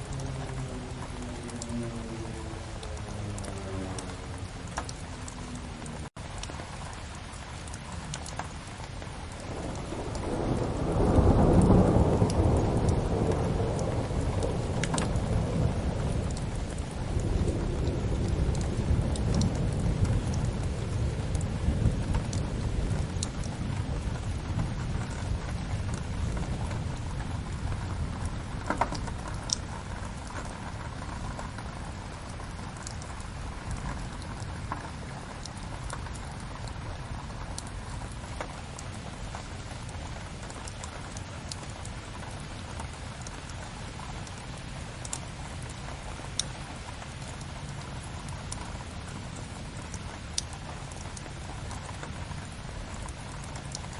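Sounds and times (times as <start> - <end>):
thunder rumble: 0.0 - 6.1, 9.3 - 47.7
steady rain: 0.0 - 53.9
wood fire crackling: 9.1 - 30.9.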